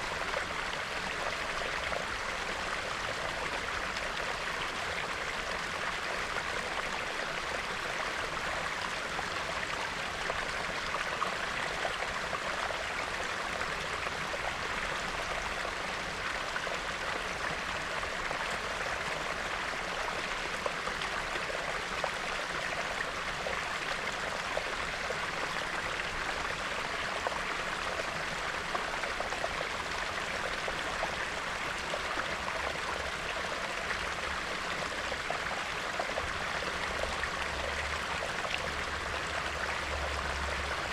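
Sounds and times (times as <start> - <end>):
stream trickling over rocks: 0.0 - 40.9.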